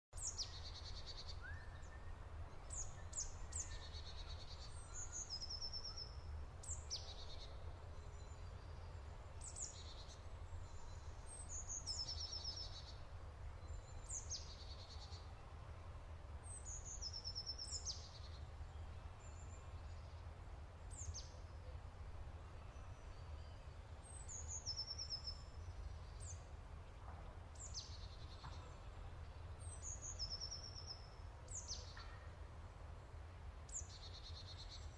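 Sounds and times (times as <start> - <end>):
bird song whistle: 0.2 - 7.5.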